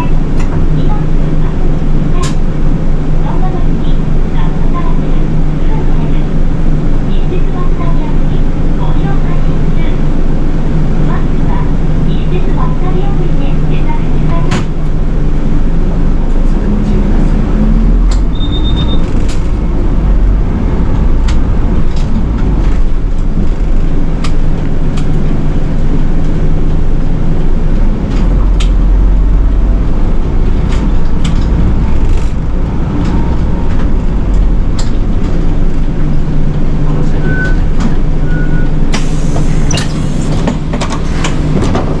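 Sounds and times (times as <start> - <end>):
bus engine rumble: 0.0 - 42.0
short beeps: 18.3 - 19.1
air hiss: 39.0 - 41.5.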